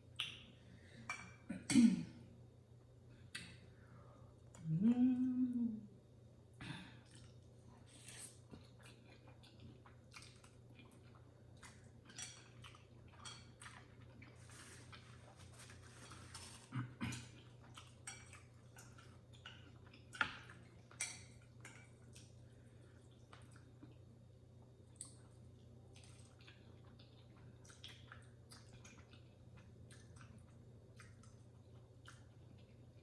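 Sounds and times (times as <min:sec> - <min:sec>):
steady low hum: 0:00.0 - 0:33.0
person chewing noodles: 0:07.0 - 0:24.1, 0:24.8 - 0:33.0.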